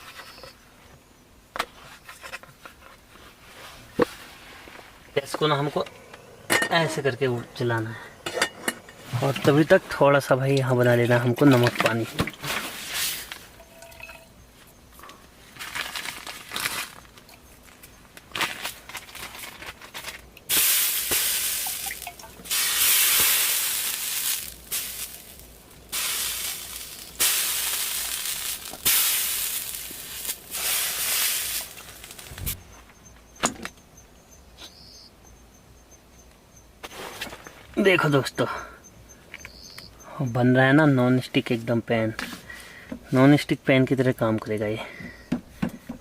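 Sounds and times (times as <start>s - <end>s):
water sizzling on hot wok: 20.5s - 32.6s.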